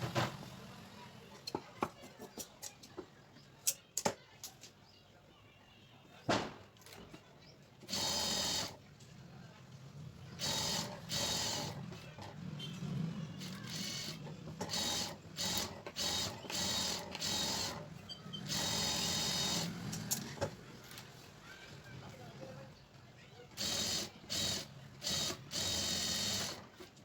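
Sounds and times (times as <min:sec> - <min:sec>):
sewing machine stitching: 0:07.9 - 0:08.8, 0:10.3 - 0:20.4, 0:23.6 - 0:26.8.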